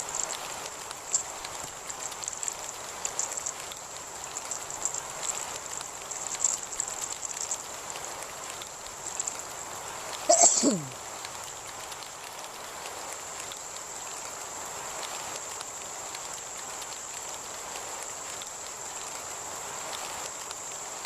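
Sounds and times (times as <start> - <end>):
close raindrops ticking: 0.0 - 21.0
heavy rain: 0.0 - 21.0.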